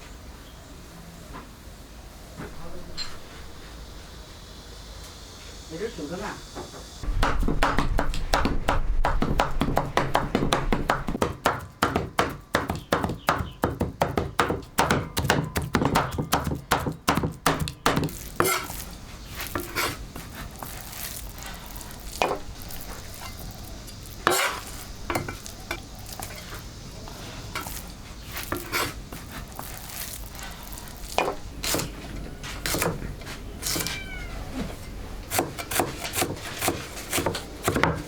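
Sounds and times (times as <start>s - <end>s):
scattered knocks: 7.0s - 18.1s
kitchen utensil strokes: 15.9s - 34.0s, 35.3s - 37.8s.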